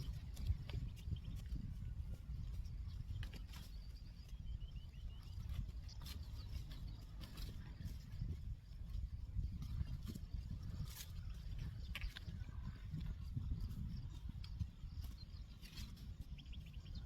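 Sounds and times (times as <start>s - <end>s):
wind on microphone: 0.0s - 17.0s
bird chirping: 2.6s - 8.0s, 13.6s - 17.0s.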